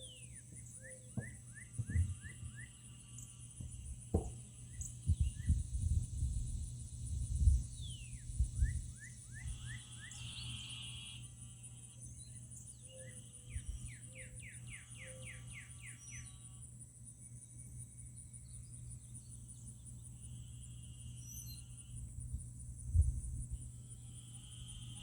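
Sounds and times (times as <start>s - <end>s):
bird singing trills: 0.0s - 3.3s, 7.7s - 11.2s, 12.0s - 16.6s, 21.1s - 21.7s
high-pitched insect drone: 0.0s - 25.0s.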